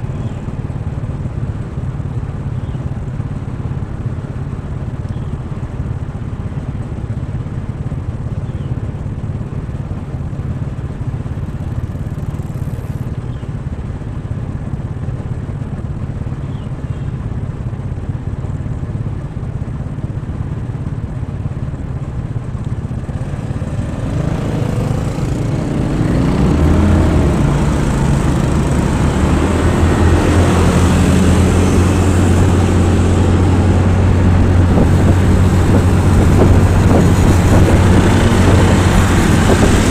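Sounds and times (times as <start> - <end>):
motorcycle engine revving: 10.8 - 13.4, 21.8 - 39.9.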